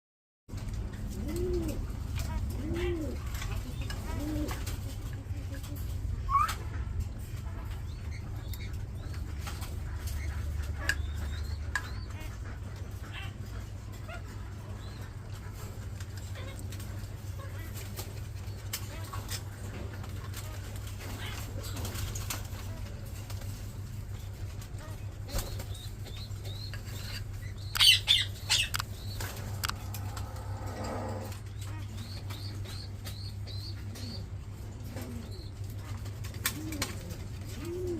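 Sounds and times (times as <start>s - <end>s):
steady low hum: 0.5s - 37.9s
bird wings flapping: 36.0s - 37.9s.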